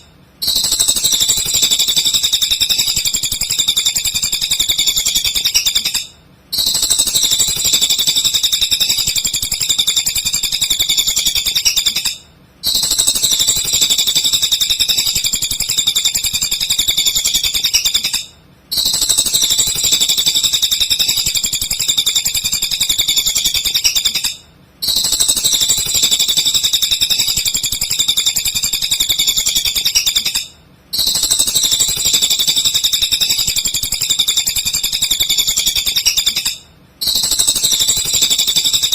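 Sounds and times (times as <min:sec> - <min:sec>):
bird chattering song: 0:00.0 - 0:38.9.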